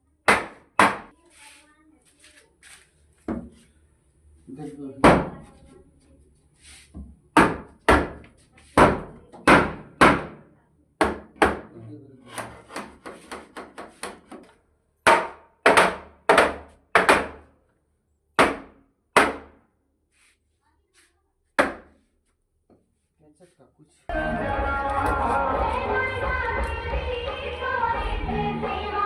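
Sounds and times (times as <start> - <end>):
hammer striking wood: 0.3 - 1.1, 7.4 - 10.4, 11.0 - 11.7, 15.0 - 17.5, 18.4 - 19.6, 21.6 - 22.0.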